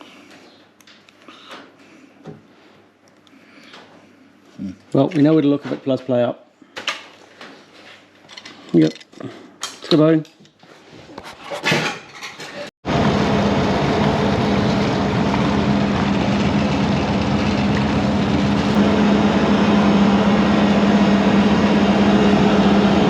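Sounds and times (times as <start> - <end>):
car engine running steadily: 12.9 - 23.0.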